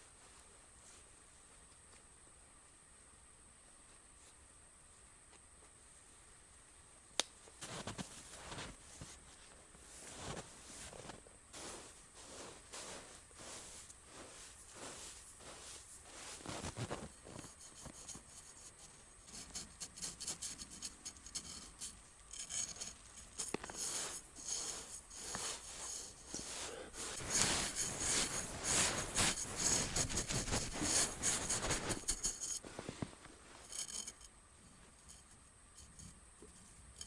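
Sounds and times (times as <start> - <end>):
scraping and rubbing strokes: 7.6 - 37.0.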